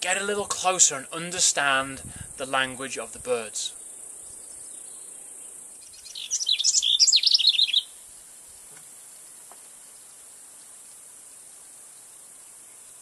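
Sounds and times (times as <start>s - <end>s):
small bird chirping rapidly: 4.2s - 10.1s.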